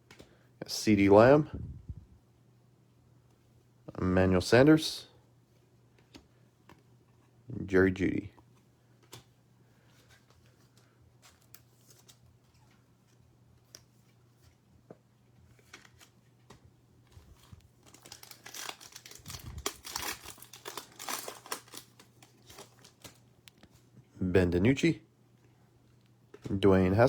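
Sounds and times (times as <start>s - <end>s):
wrapper crinkling and tearing: 17.3s - 23.3s.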